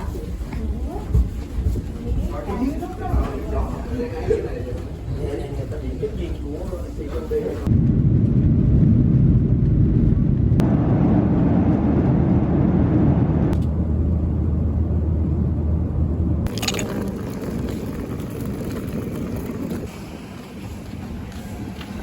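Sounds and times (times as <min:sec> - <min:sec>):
vehicle engine rumble: 0:07.4 - 0:22.0
traffic noise: 0:13.5 - 0:22.0.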